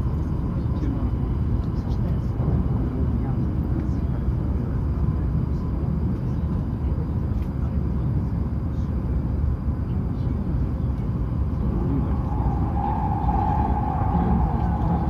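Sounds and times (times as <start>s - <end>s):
train running rumble: 10.2s - 15.0s
faint steady tone: 11.6s - 15.0s.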